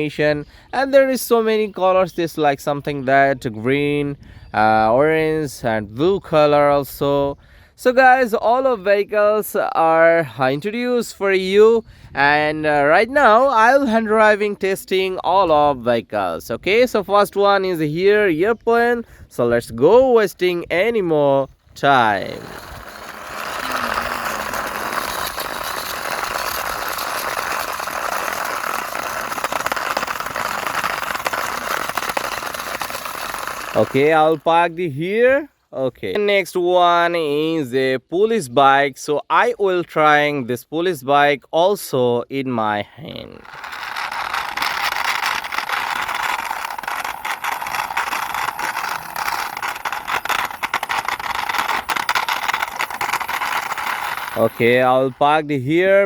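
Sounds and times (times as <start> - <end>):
toy plane wheels whirring rattle: 20.3 - 34.6, 43.1 - 56.0
quick clicks and rattles: 21.9 - 34.4, 43.4 - 54.9.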